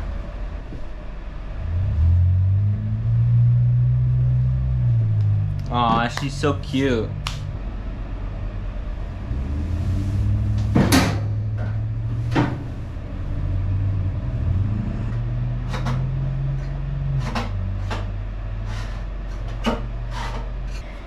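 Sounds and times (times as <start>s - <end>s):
low hum: 0.0s - 21.0s
knocks and clunks: 10.5s - 12.9s, 15.1s - 20.8s.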